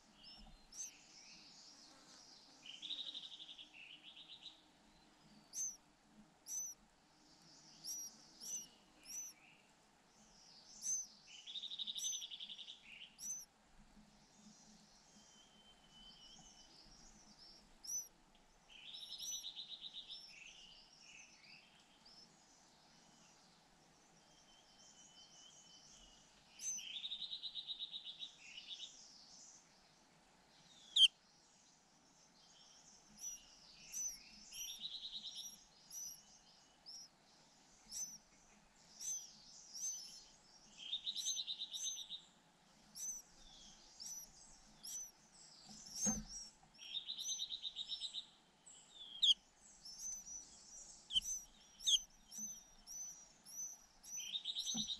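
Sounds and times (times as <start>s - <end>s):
nestlings begging buzzily: 0.7s - 0.9s, 5.5s - 5.8s, 6.5s - 6.8s, 7.8s - 9.3s, 10.8s - 11.1s, 11.9s - 12.3s, 13.2s - 13.4s, 17.8s - 18.1s, 33.2s - 36.2s, 36.9s - 37.1s, 37.8s - 38.2s, 39.0s - 40.2s, 40.9s - 42.1s, 42.9s - 45.1s, 45.8s - 47.5s, 49.1s - 50.4s, 51.0s - 54.9s
thin high chirps: 5.5s - 5.8s, 6.5s - 6.8s, 7.8s - 9.3s, 10.8s - 11.1s, 13.2s - 13.4s, 33.2s - 36.2s, 37.9s - 38.2s, 39.0s - 40.2s, 40.9s - 42.1s, 43.0s - 43.2s, 44.0s - 45.1s, 51.1s - 54.9s.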